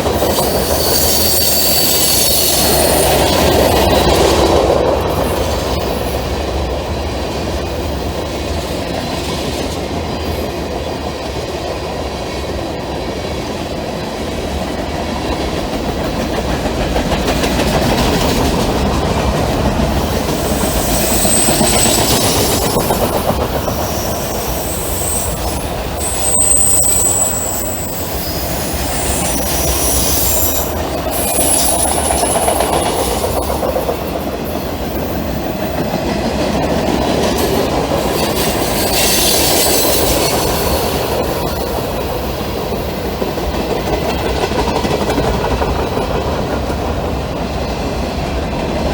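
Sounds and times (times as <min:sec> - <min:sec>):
train wheels clacking on rails: 0:00.0 - 0:48.9
high-pitched wheel squeals: 0:00.2 - 0:04.1, 0:20.3 - 0:33.4.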